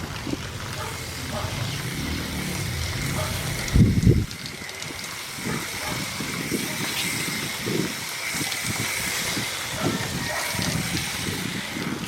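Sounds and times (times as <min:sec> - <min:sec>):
low water splashing: 0:00.0 - 0:04.9
pressurized water spray hissing: 0:00.0 - 0:12.0.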